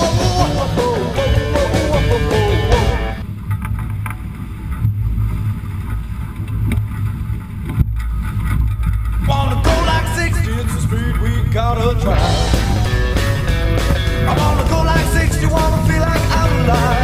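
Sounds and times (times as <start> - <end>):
rock music with singing: 0.0 - 3.3, 9.3 - 17.0
water rushing: 9.6 - 17.0.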